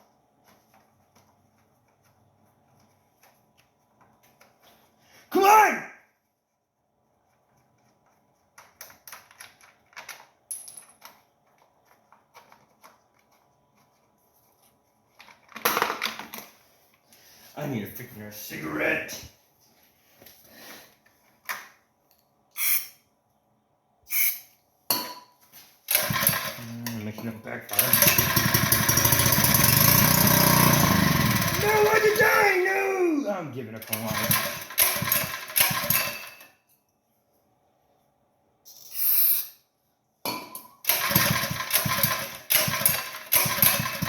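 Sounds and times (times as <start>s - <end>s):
recoil starter rasps: 25.9s - 26.8s, 27.7s - 32.5s, 33.8s - 36.2s, 40.9s - 44.0s
small engine cranking and sputtering: 25.9s - 26.9s, 27.7s - 32.5s, 33.8s - 36.4s, 40.9s - 44.0s.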